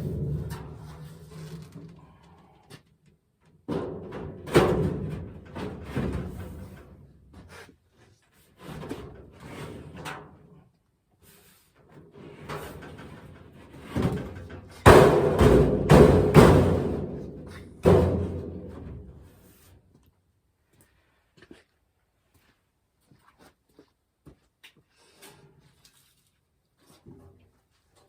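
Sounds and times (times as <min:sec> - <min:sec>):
hard objects knocking and clattering: 0:14.0 - 0:19.3.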